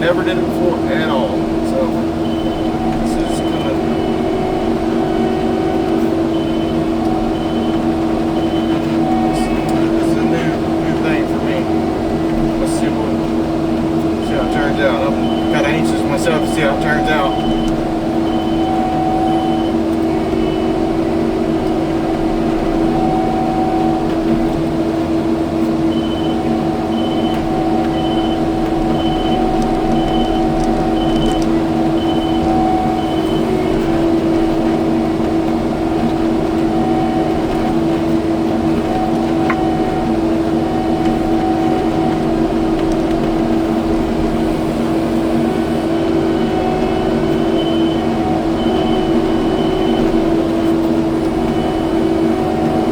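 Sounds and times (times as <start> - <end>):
high beeps: 0.0 - 13.3, 14.1 - 24.6, 25.8 - 44.4, 45.4 - 52.9
diesel engine droning: 0.0 - 52.9.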